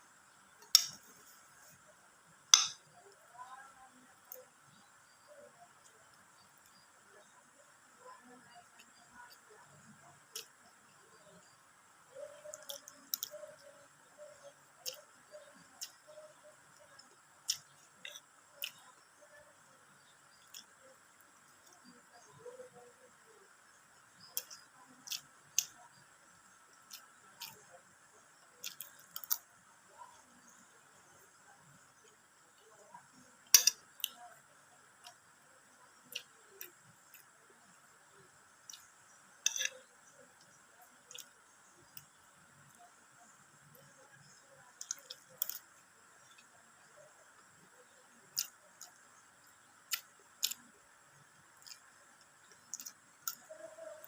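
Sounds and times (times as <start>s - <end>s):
faint room hiss: 0.0s - 54.0s
mouth smacks and chewing: 26.7s - 27.7s, 28.6s - 29.5s, 44.8s - 46.5s, 48.3s - 49.1s, 49.9s - 50.6s, 51.5s - 53.5s.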